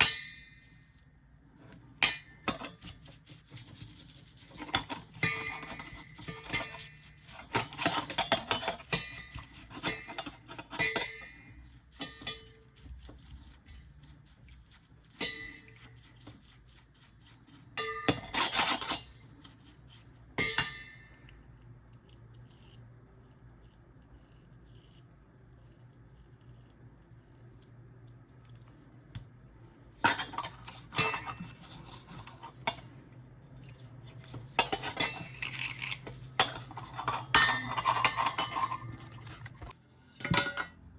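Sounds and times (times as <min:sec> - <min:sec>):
metal parts clinking and scraping: 0:33.9 - 0:40.7.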